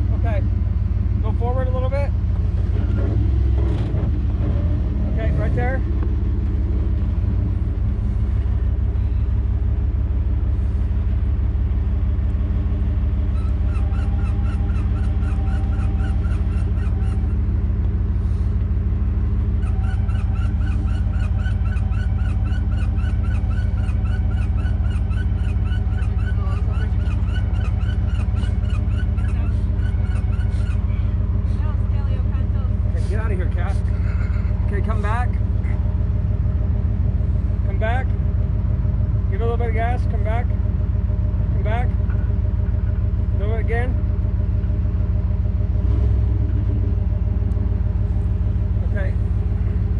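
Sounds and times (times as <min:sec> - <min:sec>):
truck engine idling: 0:00.0 - 0:49.9
high squeaking chirps: 0:13.2 - 0:17.6, 0:19.5 - 0:31.7.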